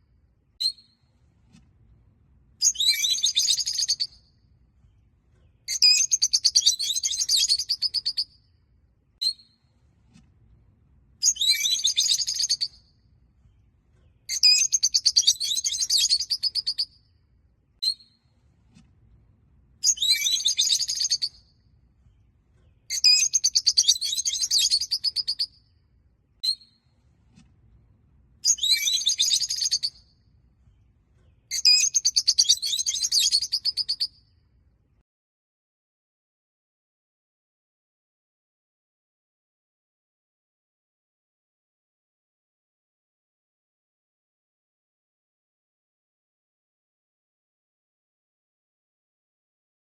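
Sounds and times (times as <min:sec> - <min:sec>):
lovebirds chirping: 0:05.5 - 0:08.3.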